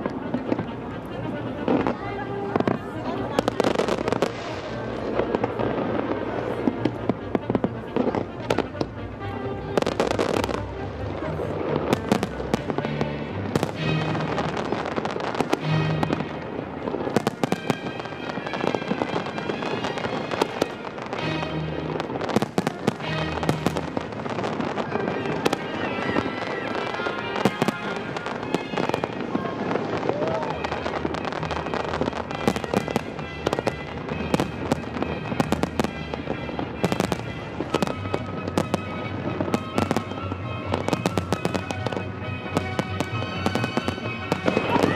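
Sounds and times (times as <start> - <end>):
fireworks bangs and crackles: 0.0 - 44.9.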